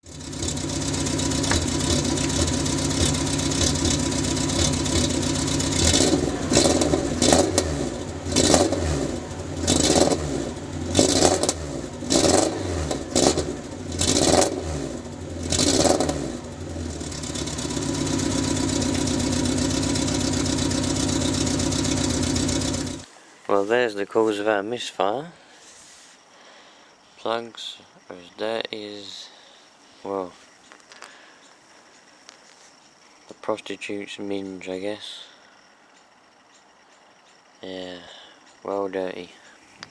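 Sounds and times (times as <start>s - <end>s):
misfiring car engine revving: 0.0s - 23.1s.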